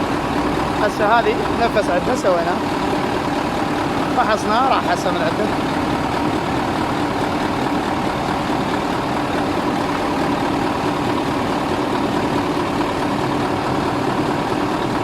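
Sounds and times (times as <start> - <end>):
truck diesel engine idling: 0.0 - 15.0.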